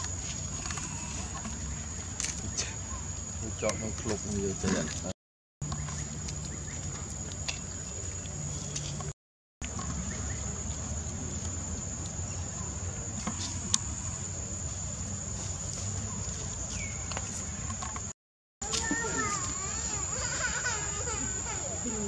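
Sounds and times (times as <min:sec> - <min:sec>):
low outdoor rumble: 0:00.0 - 0:18.1
high-pitched insect drone: 0:18.6 - 0:22.0.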